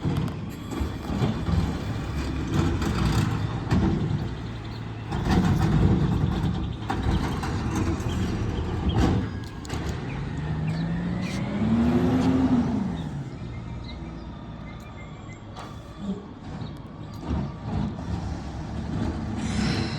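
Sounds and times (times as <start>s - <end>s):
sharp knocks and clanks: 0.0s - 10.1s
garbage truck engine running: 0.0s - 19.9s.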